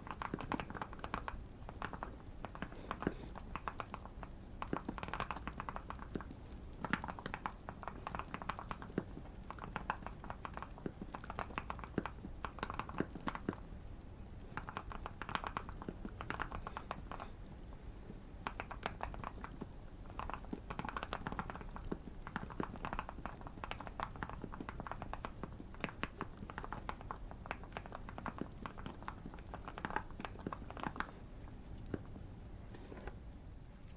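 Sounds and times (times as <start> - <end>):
mechanical keyboard typing: 0.0 - 13.6, 14.4 - 17.3, 18.5 - 31.2
faint fireplace crackle: 0.0 - 33.9.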